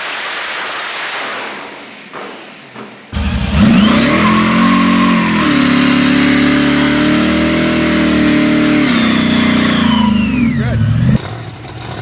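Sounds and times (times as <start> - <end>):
high whine: 3.2 - 11.2
car engine pulling hard: 3.2 - 12.0.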